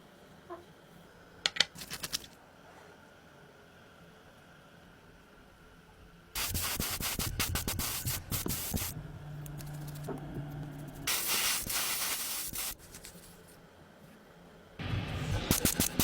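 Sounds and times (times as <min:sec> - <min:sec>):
strong air hiss: 0:06.4 - 0:09.0, 0:11.1 - 0:12.8
low motor hum: 0:08.2 - 0:11.1.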